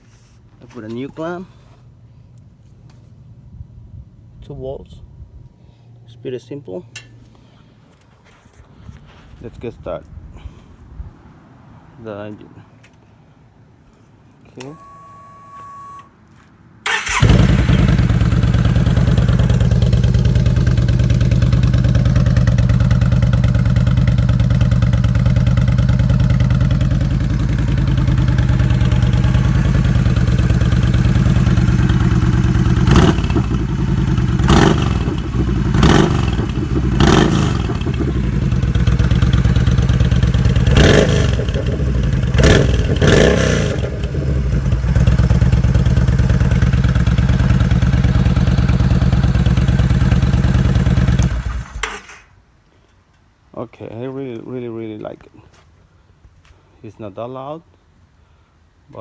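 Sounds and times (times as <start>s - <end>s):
motorcycle engine idling and blipping: 16.9s - 52.2s.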